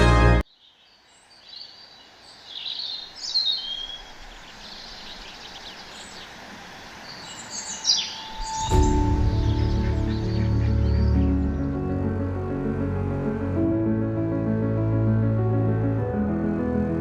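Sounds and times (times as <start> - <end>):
outdoor ambience hiss: 0.4 - 11.0
small birds chirping: 0.4 - 11.8.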